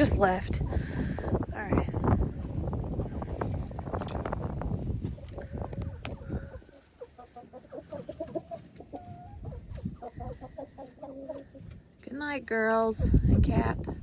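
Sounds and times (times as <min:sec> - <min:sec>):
hens clucking softly: 0:02.4 - 0:12.0.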